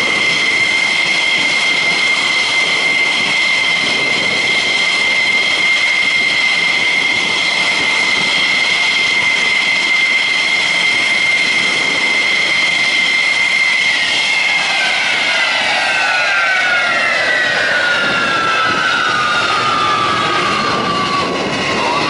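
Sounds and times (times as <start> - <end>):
jet engine whine: 0.0 - 22.0.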